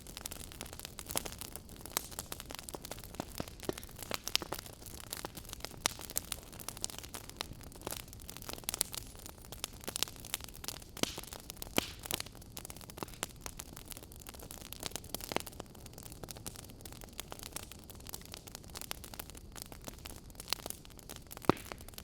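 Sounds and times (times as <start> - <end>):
wood fire crackling: 0.0 - 22.0
sharp pops and snaps: 3.2 - 4.6, 11.0 - 12.2, 21.4 - 22.0.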